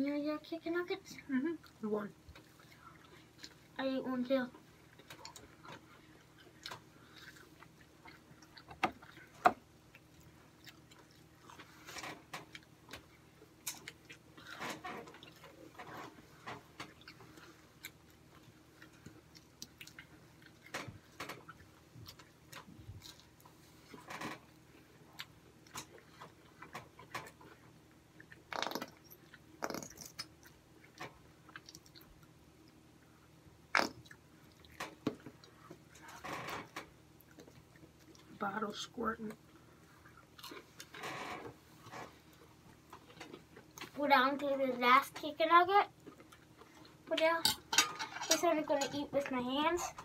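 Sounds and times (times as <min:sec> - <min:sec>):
chewing and biting food: 0:04.8 - 0:15.8, 0:16.8 - 0:23.6, 0:39.8 - 0:40.9, 0:46.0 - 0:47.0
cutlery clicks and knocks: 0:47.5 - 0:48.4.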